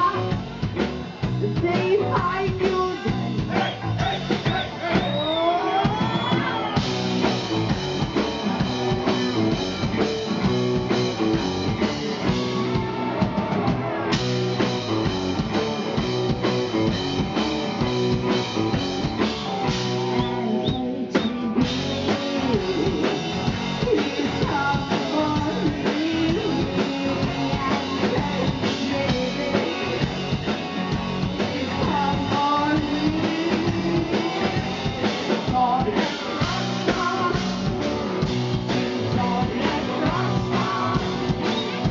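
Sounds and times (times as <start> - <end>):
drum kit: 0.0 - 41.9
electric guitar: 0.0 - 41.9
person singing: 20.1 - 37.8, 38.7 - 41.8.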